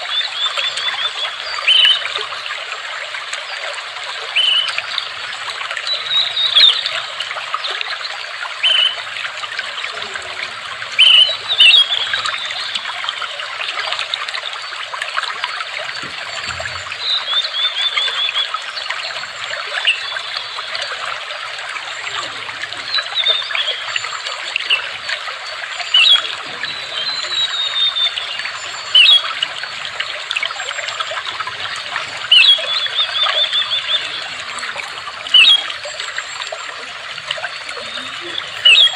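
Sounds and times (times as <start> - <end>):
water trickling: 0.0 - 38.9
bird chirping and trilling: 8.6 - 13.0, 15.8 - 21.0, 22.8 - 38.9.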